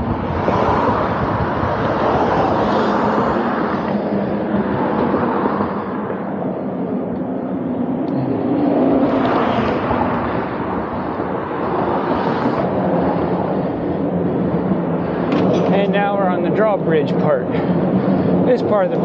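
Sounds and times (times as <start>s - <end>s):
road noise: 0.0s - 19.0s
wind noise: 0.0s - 19.0s.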